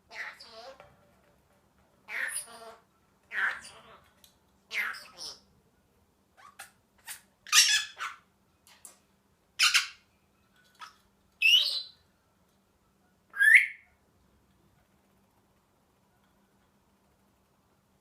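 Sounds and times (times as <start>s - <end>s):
parrot squawks: 0.1s - 0.8s, 2.1s - 4.1s, 4.7s - 5.4s, 6.4s - 8.2s, 9.6s - 10.0s, 13.4s - 13.8s.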